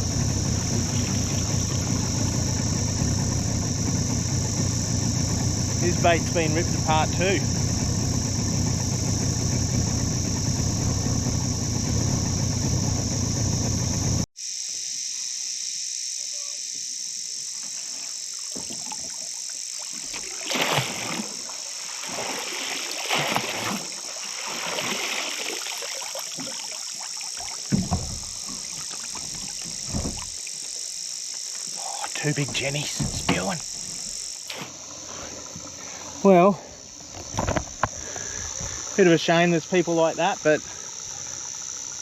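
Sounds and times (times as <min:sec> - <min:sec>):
water splashes: 0:00.0 - 0:02.7, 0:17.7 - 0:30.9
outboard motor running: 0:00.0 - 0:14.3, 0:17.2 - 0:42.0
high insect drone: 0:00.0 - 0:42.0
knocks against boat: 0:27.6 - 0:30.4, 0:32.4 - 0:33.8.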